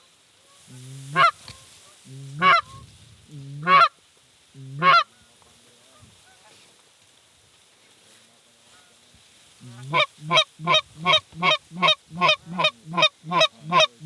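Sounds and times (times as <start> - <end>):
goose call blown: 0.5 - 4.0, 4.6 - 5.2, 9.6 - 14.0.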